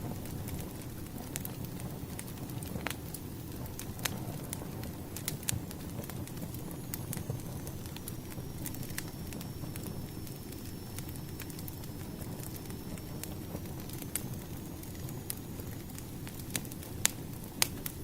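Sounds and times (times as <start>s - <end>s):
firewood crackling and popping: 0.0s - 18.0s
low rumble of fire: 0.0s - 18.0s
faint high whistle: 6.9s - 15.6s.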